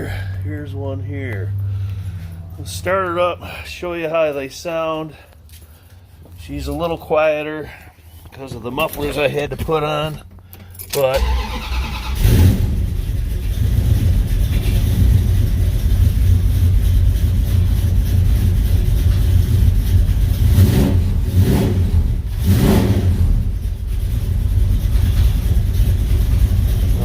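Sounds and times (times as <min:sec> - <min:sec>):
car engine running: 0:00.0 - 0:03.6, 0:11.9 - 0:27.0
exhaust rumbling low: 0:00.0 - 0:10.5, 0:12.2 - 0:27.0
engine revving: 0:11.2 - 0:27.0.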